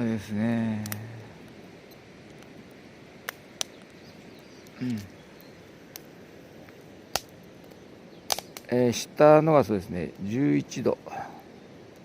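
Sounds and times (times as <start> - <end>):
outdoor background hiss: 0.0 - 12.0
sharp clicks: 8.3 - 8.7.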